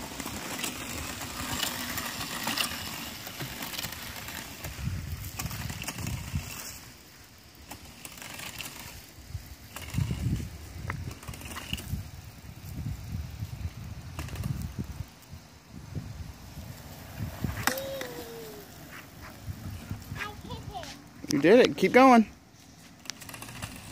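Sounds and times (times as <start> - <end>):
gravelly crunching over dirt: 0.0 - 23.9
wind rumble on microphone: 4.5 - 6.8, 9.2 - 20.9.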